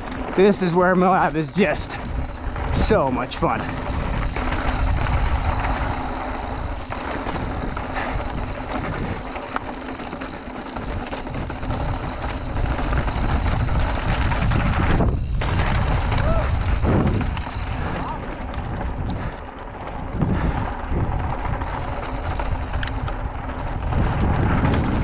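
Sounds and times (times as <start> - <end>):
bike tyres rumbling on trail: 0.0 - 25.0
wind buffeting microphone: 0.0 - 25.0
small clicks: 17.2 - 20.1, 21.7 - 24.8.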